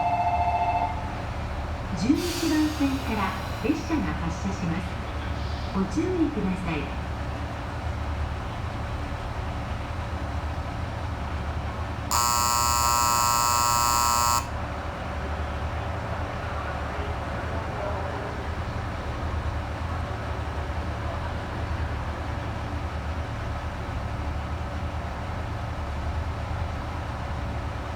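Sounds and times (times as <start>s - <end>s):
diesel engines idling: 1.2s - 14.5s
shrill electronic buzzer: 12.1s - 14.5s.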